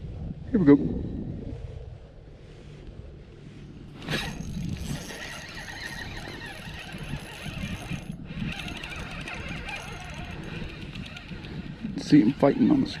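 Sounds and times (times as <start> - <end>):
fishing reel clicking and ratcheting: 4.0 - 13.0.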